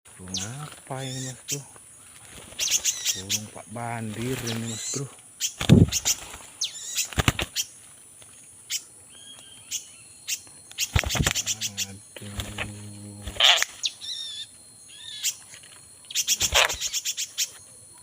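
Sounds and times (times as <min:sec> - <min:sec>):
low steady hum: 0:00.1 - 0:18.0
small bird chirping and whistling: 0:02.6 - 0:03.5, 0:04.4 - 0:07.8, 0:08.7 - 0:12.0, 0:13.3 - 0:17.7.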